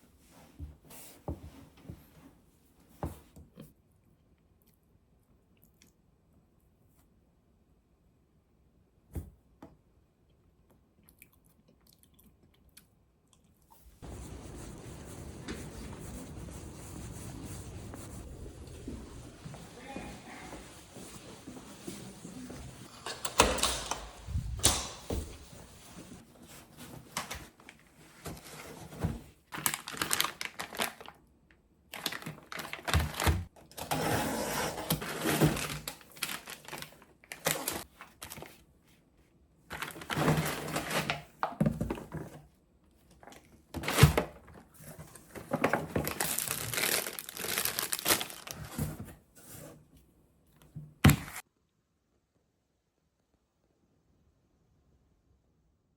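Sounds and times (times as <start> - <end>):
packaging crinkling and tearing: 29.5 - 31.2, 31.9 - 33.9, 34.8 - 38.6, 39.7 - 41.2, 45.6 - 48.8.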